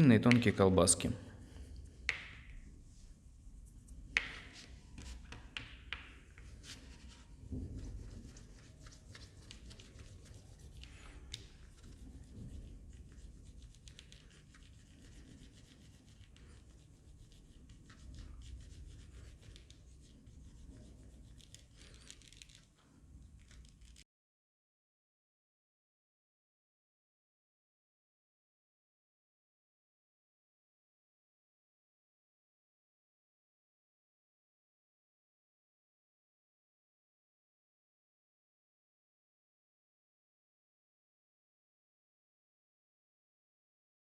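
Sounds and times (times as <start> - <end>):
hands rolling plasticine: 1.4 - 24.0.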